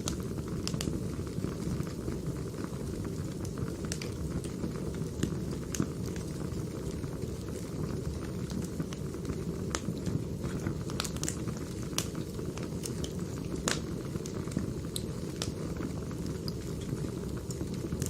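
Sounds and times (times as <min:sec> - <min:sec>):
firewood crackling: 0:00.0 - 0:18.0.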